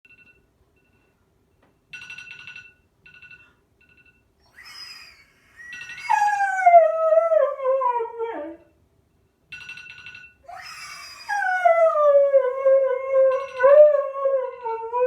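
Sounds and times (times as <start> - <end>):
dog howling vocalisation: 4.5 - 8.6, 10.5 - 15.0
dog whining: 4.5 - 8.6, 10.5 - 15.0.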